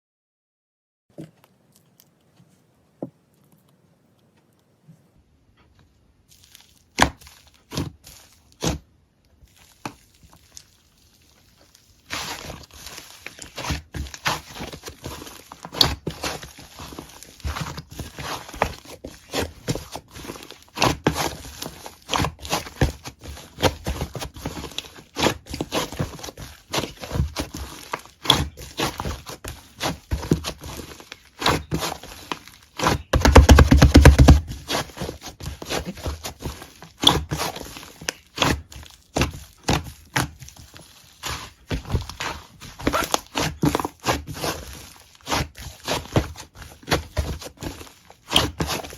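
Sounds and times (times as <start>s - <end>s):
slime clicking and crackling: 9.5s - 23.9s.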